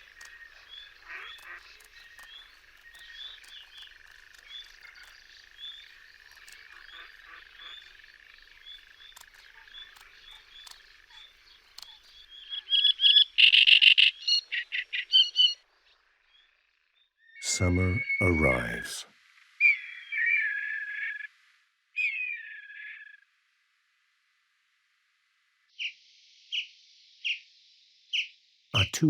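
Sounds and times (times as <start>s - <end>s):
bird chirps: 0.0s - 15.6s
frogs trilling: 0.0s - 18.8s
bird alarm calls: 6.4s - 15.6s.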